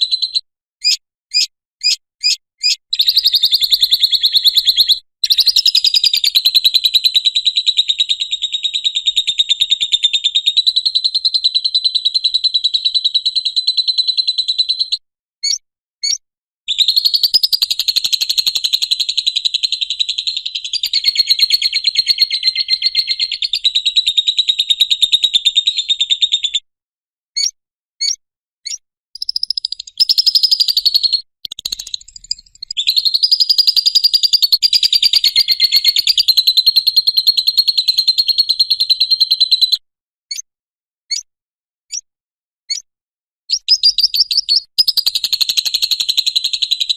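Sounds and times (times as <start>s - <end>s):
short single bird chirps: 0.0s - 6.1s, 15.4s - 17.8s, 27.4s - 36.2s, 43.5s - 45.2s
lovebird chattering trill: 0.0s - 8.2s, 16.8s - 26.5s, 29.2s - 40.4s, 43.5s - 46.9s.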